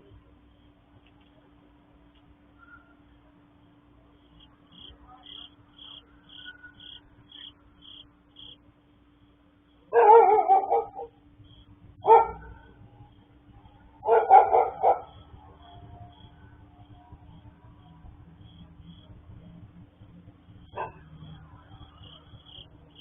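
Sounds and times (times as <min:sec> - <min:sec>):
dog barking: 0:09.9 - 0:11.2, 0:12.0 - 0:12.8, 0:14.0 - 0:15.7, 0:20.7 - 0:21.1.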